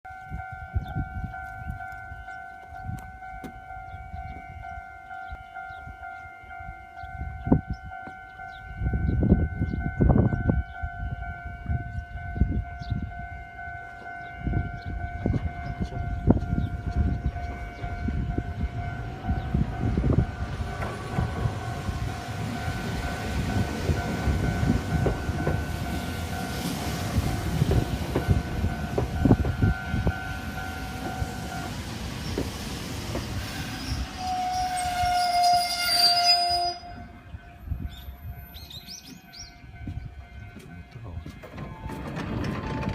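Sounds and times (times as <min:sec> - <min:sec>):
train rumble with wheel knocks: 0:14.0 - 0:35.3, 0:38.9 - 0:42.9.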